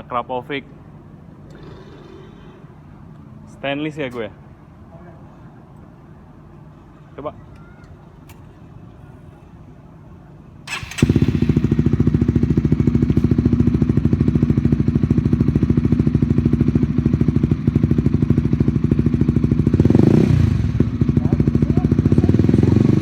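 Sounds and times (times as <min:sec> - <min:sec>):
motorcycle engine cranking: 0:10.7 - 0:13.4
motorcycle engine idling: 0:10.7 - 0:23.0.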